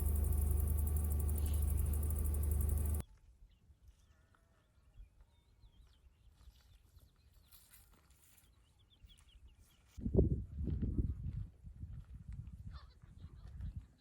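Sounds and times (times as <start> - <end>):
faint bird chirps: 0.0 - 3.0.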